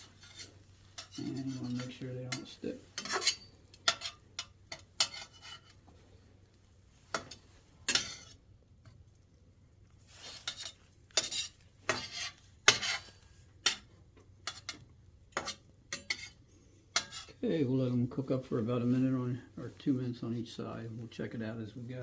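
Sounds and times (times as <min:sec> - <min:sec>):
metal utensil scraping a frying pan: 0:00.0 - 0:06.0, 0:07.0 - 0:08.4, 0:10.0 - 0:17.4.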